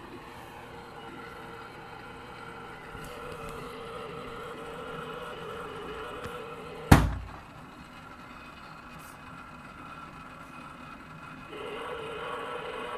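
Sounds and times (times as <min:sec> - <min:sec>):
motor whining: 0:00.0 - 0:08.8
loud thump: 0:06.9 - 0:07.6.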